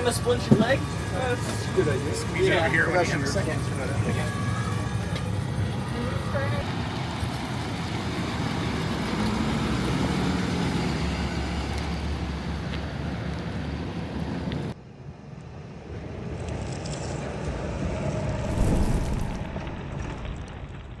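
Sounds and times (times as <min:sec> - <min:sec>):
engine rumbling: 0:18.4 - 0:20.8.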